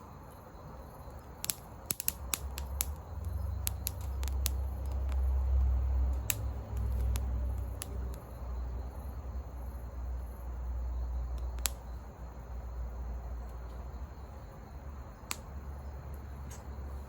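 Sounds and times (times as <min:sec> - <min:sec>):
faint insect chirping: 0:00.0 - 0:17.0
campfire wood crackling: 0:00.2 - 0:17.0
sharp fire pops: 0:01.1 - 0:08.4, 0:11.3 - 0:12.0, 0:15.2 - 0:15.5.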